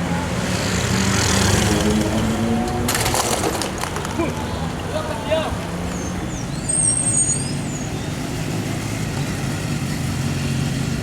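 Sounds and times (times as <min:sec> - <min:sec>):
high squeal: 0:06.4 - 0:08.2.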